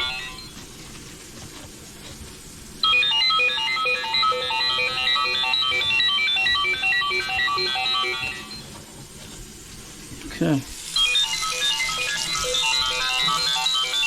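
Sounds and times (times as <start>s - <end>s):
phone ringtone chime melody: 0.0s - 0.5s, 2.8s - 8.7s, 11.0s - 14.0s.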